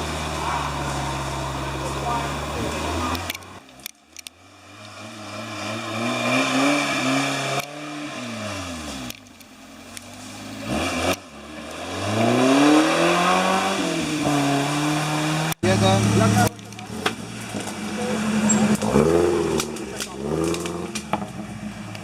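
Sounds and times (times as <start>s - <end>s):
vehicle engine revving hard: 4.6s - 9.2s, 10.5s - 22.0s.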